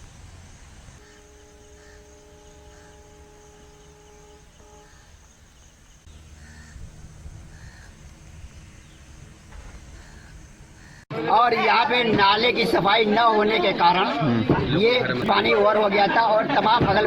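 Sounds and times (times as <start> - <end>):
bird calling: 0.0 - 11.1
horn-like tone: 1.0 - 8.4
low rumble: 4.8 - 11.0.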